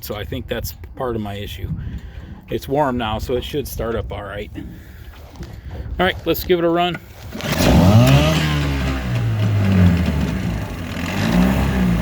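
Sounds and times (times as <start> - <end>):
two-stroke outboard motor running: 7.2 - 12.0.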